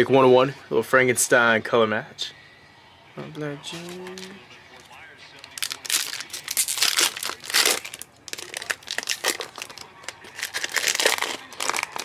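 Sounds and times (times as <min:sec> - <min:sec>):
wrapper crinkling and tearing: 0:03.8 - 0:04.3, 0:05.4 - 0:12.0.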